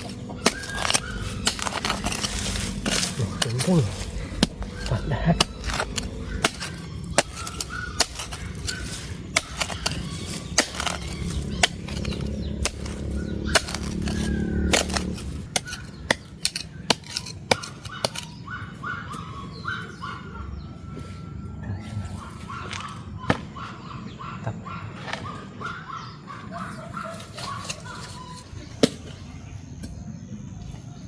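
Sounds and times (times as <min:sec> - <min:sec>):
sharp knocks and cracks: 0:00.0 - 0:18.3
bird calls: 0:00.0 - 0:31.0.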